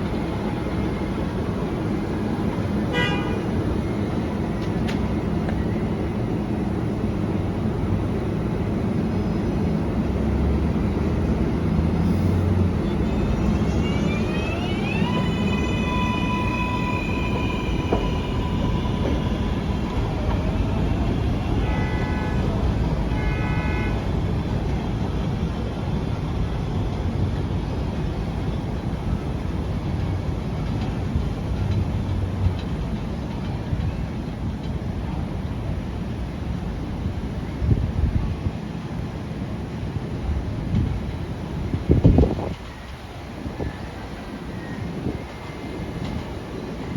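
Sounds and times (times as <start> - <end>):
subway train wheel rumble: 0.0 - 46.9
traction motors whining: 12.8 - 21.8.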